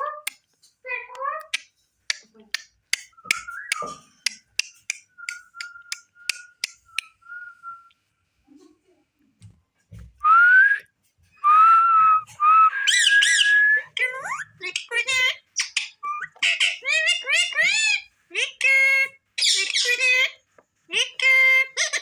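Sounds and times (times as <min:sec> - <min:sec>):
parrot sharp clicks: 0:01.5 - 0:07.1
parrot whistling: 0:11.4 - 0:16.8.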